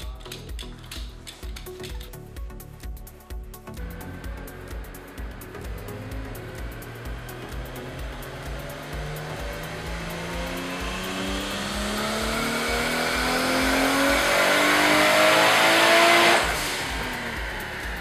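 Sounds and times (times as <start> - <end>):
background music with steady beat: 0.0 - 18.0
car engine revving on a dyno: 3.9 - 18.0.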